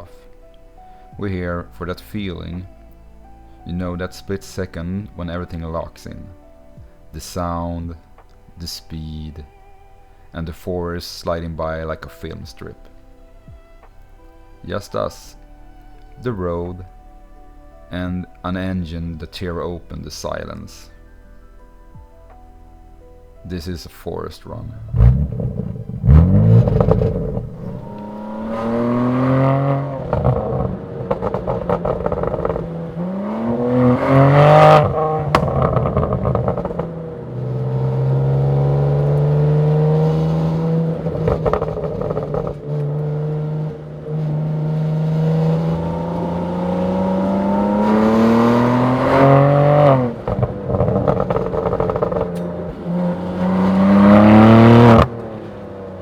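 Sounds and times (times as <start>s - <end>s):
car engine accelerating hard: 24.5s - 56.0s.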